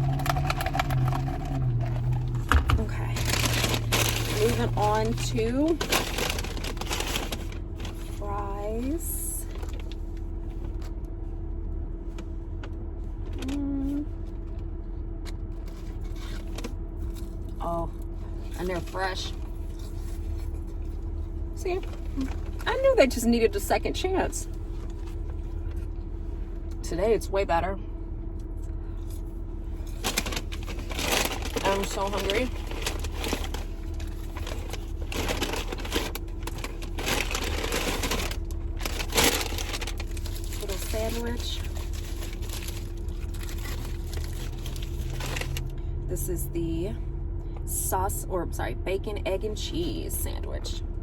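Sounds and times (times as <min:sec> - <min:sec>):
food packaging rustling: 0:00.0 - 0:08.2, 0:29.0 - 0:45.8
paper wrapper crinkling: 0:00.0 - 0:08.2, 0:29.0 - 0:45.7
car engine idling hum: 0:00.0 - 0:51.0
person humming: 0:13.4 - 0:14.1.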